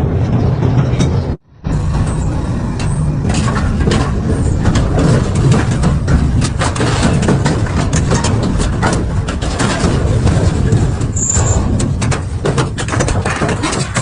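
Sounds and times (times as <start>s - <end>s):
shredder drive rumbling: 0.0s - 14.0s
material cracking and crunching: 3.3s - 14.0s.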